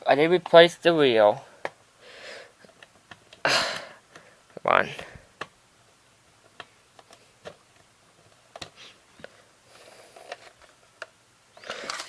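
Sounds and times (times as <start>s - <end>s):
plastic cassette clicks and taps: 5.4s - 5.6s, 6.4s - 8.8s.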